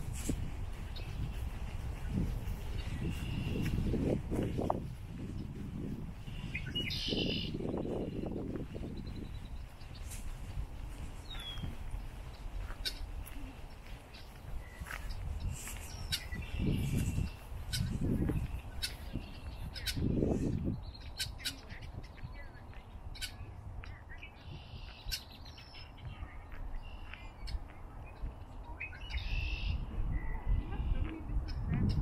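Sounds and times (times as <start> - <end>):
birds chirping: 0.0 - 32.0
wind buffeting microphone: 0.0 - 32.0.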